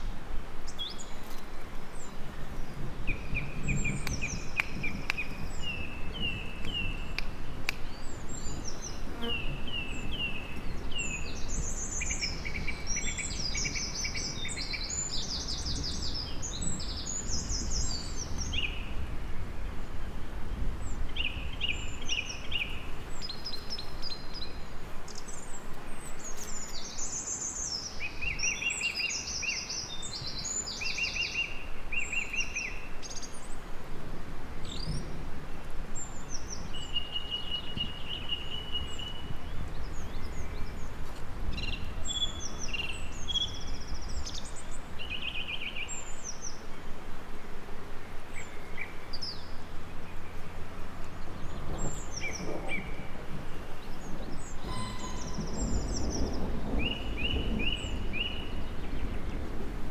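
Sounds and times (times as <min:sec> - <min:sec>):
small birds singing and chirping: 0:00.7 - 0:33.7, 0:34.6 - 0:35.2, 0:36.0 - 0:46.8, 0:48.2 - 0:59.9
long whistled bird note: 0:54.5 - 0:57.8.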